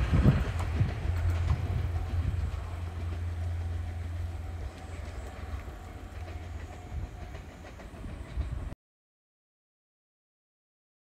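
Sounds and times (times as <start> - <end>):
diesel train rumble: 0.0 - 8.8.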